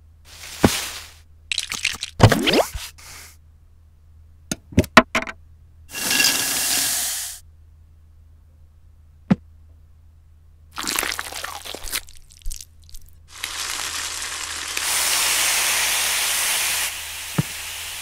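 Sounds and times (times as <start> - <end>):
hiss: 5.9 - 7.4, 13.3 - 18.0.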